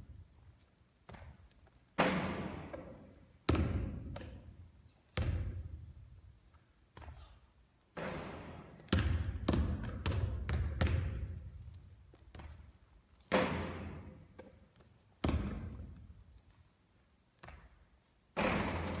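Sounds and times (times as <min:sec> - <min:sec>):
basketball bouncing on hard court: 0:01.1 - 0:01.4, 0:02.0 - 0:05.8, 0:08.0 - 0:12.7, 0:15.2 - 0:16.1, 0:18.4 - 0:19.0.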